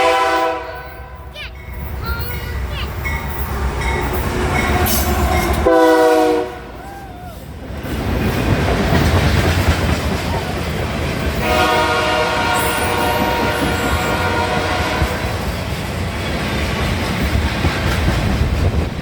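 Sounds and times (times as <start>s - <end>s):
train horn blasts: 0.0s - 1.3s, 4.3s - 6.8s, 11.4s - 15.5s
passing train running noise: 0.0s - 19.0s.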